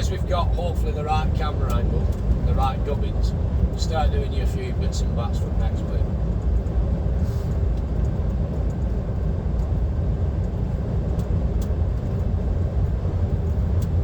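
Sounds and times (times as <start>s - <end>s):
truck diesel engine hum: 0.0s - 14.0s
tyre and road noise: 0.0s - 14.0s.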